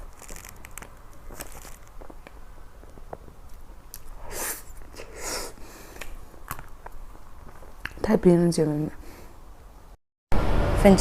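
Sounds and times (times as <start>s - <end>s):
breathy sucking sounds: 4.2s - 6.2s.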